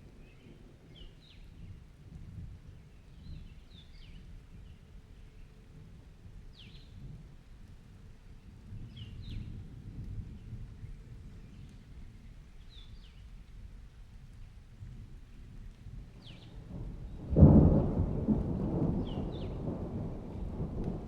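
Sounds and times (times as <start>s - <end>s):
rain: 0.0s - 21.0s
thunder rumbling: 15.9s - 21.0s
thunder clap: 16.6s - 21.0s.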